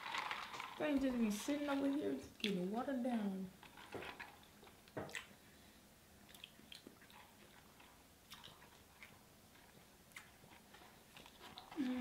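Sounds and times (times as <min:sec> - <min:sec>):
people chewing food: 0:06.2 - 0:12.0.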